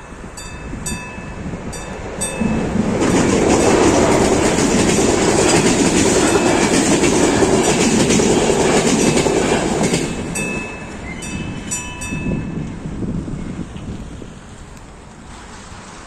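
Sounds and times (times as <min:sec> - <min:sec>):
train wheels clattering on rails: 0:00.0 - 0:12.8
crossing warning bell ringing: 0:00.0 - 0:12.9.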